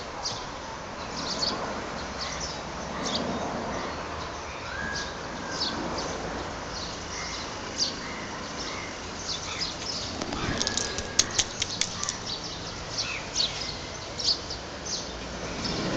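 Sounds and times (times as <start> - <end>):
steady street hiss: 0.0 - 15.9
small birds chirping: 0.2 - 15.9
sharp clicks: 10.2 - 12.3.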